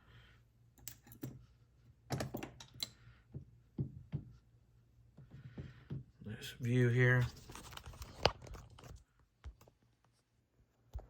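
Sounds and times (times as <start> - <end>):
small metal parts clicking and tapping: 0.8 - 1.4.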